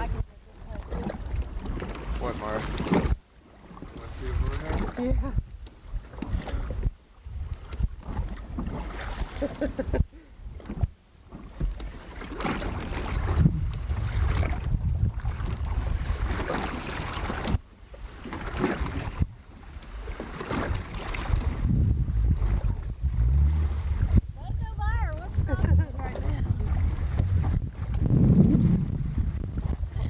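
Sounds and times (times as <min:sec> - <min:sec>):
boat and water noise: 0:00.0 - 0:30.0
wind buffeting microphone: 0:03.9 - 0:10.9, 0:12.4 - 0:17.6, 0:18.4 - 0:30.0.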